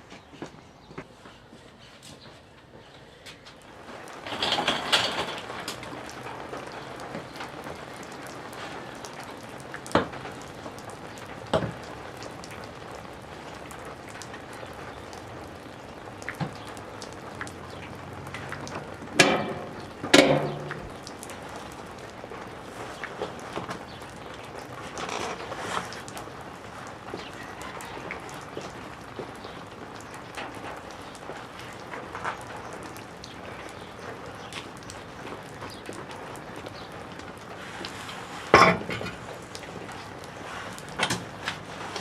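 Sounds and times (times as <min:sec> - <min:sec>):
rain with drop ticks: 0:02.6 - 0:42.0
sharp knocks: 0:19.2 - 0:20.9.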